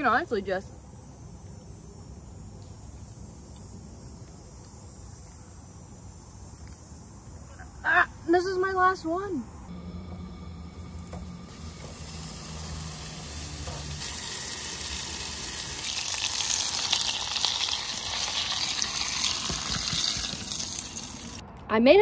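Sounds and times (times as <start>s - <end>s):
low hum: 9.4s - 21.7s
fish frying in saucepan: 10.8s - 21.4s.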